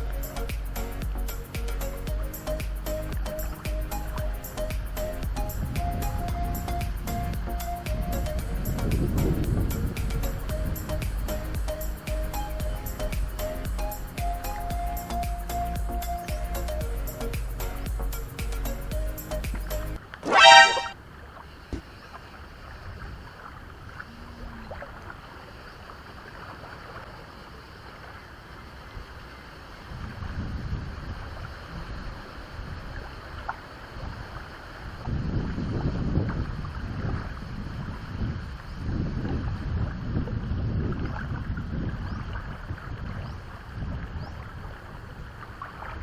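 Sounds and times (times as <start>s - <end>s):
strong wind buffeting microphone: 4.2s - 11.8s, 29.9s - 33.1s, 34.0s - 46.0s.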